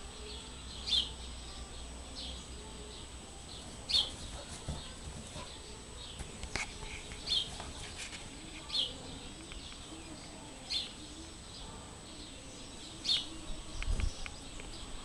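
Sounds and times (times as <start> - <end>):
small bird chirping: 6.0 - 7.6.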